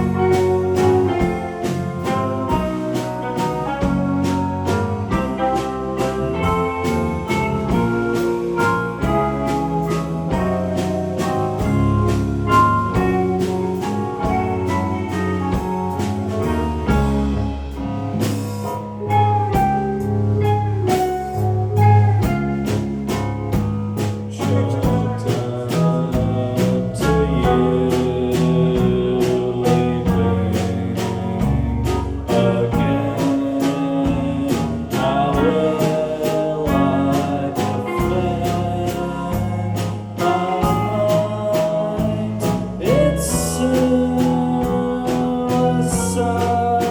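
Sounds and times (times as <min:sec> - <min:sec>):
guitar: 0:00.0 - 0:46.9
live band playing: 0:00.0 - 0:46.9
steady drum beat: 0:00.0 - 0:46.9
person singing: 0:24.3 - 0:46.9.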